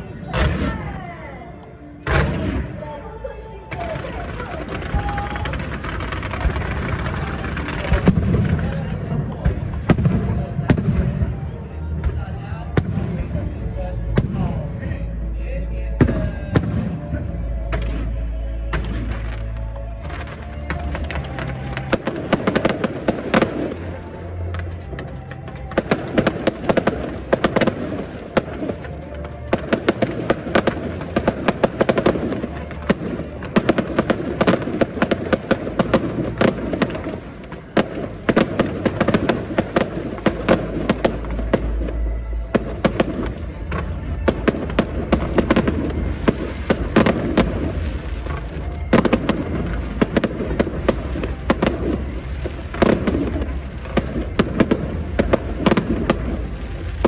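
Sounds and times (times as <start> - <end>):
fireworks bangs and crackles: 0.0 - 57.0
music playing: 0.0 - 57.0.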